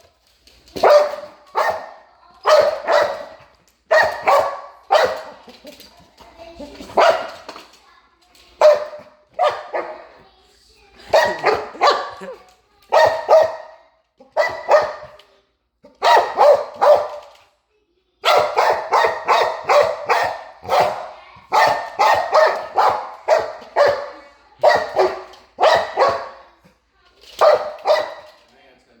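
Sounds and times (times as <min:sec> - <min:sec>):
dog barking: 0:00.8 - 0:05.4, 0:06.8 - 0:07.5, 0:08.6 - 0:10.2, 0:11.0 - 0:15.2, 0:15.8 - 0:17.3, 0:18.2 - 0:26.5, 0:27.4 - 0:28.4.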